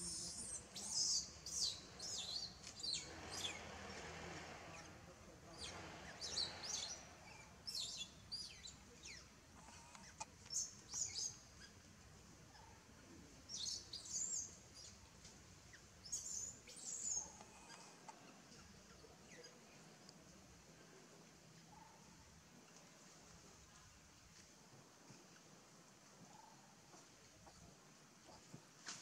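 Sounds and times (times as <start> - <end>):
birds chirping: 0.0 - 4.0, 4.6 - 20.3
faint background hiss: 0.0 - 29.0.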